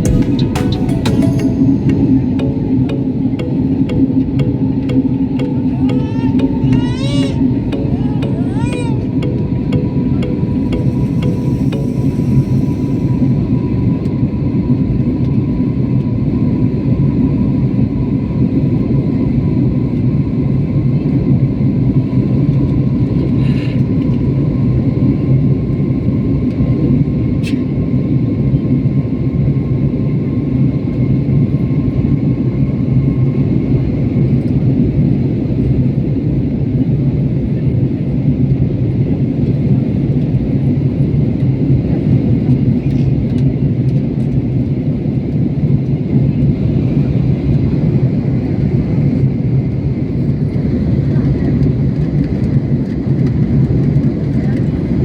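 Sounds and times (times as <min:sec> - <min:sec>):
faint high tone: 0:00.0 - 0:13.5.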